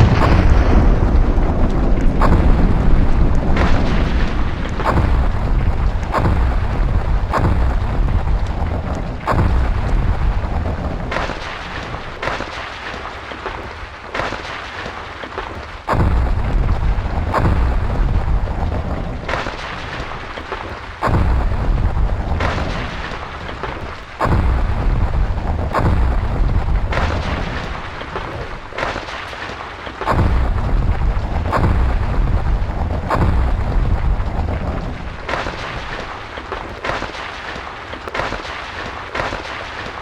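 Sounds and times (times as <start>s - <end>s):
deep rumbling: 0.0s - 12.4s, 15.9s - 29.0s, 30.1s - 36.4s
volcanic booming blasts: 0.0s - 13.7s, 15.9s - 37.3s.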